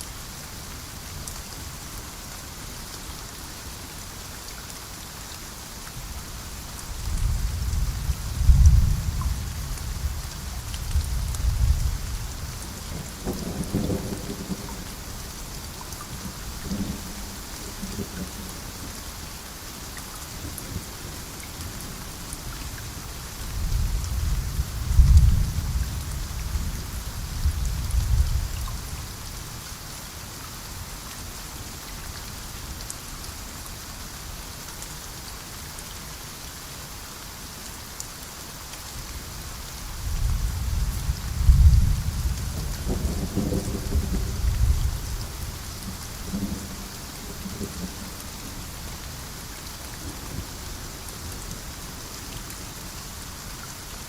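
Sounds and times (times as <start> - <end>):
steady rain: 0.0 - 54.0
rolling thunder: 7.2 - 10.2, 40.0 - 45.6.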